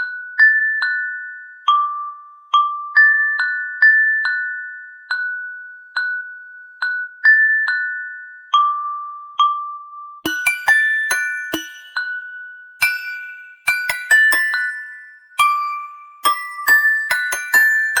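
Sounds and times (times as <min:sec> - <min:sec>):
bell-like mallet melody: 0:00.0 - 0:18.0
bright clicky notes: 0:10.3 - 0:18.0.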